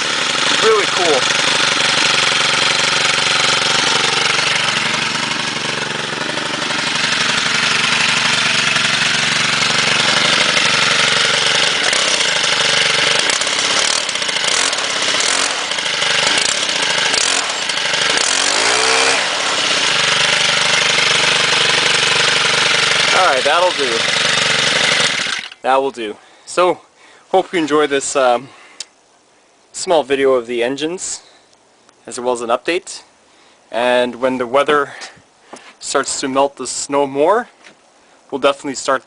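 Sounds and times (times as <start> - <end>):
string trimmer engine running: 0.0 - 25.6.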